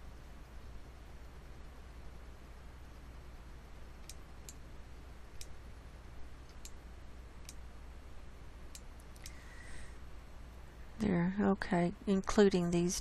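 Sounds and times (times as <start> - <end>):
low electrical hum: 0.0 - 13.0
computer mouse clicking: 4.0 - 4.6, 5.3 - 5.6, 6.4 - 6.8, 8.7 - 9.4.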